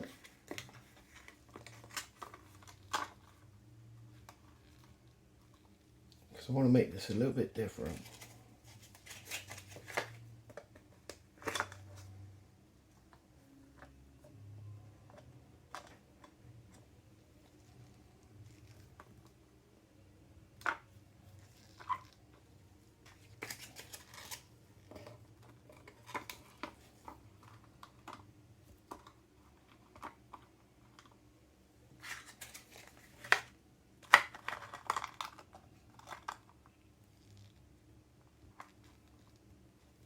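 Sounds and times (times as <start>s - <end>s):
rustling and scraping: 7.0s - 12.3s, 31.9s - 33.5s.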